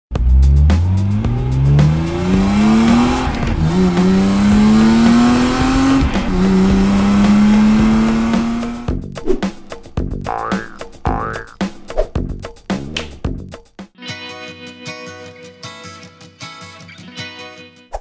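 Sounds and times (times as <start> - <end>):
car engine accelerating: 0.1 - 8.9.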